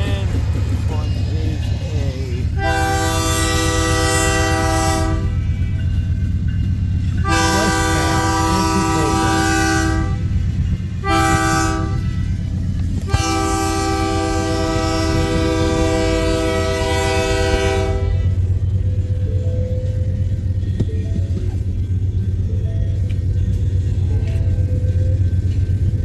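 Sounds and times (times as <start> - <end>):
low rumble of passing train: 0.0 - 26.0
locomotive air horn blasts: 2.6 - 5.4, 7.2 - 10.4, 11.0 - 12.4, 13.0 - 18.4.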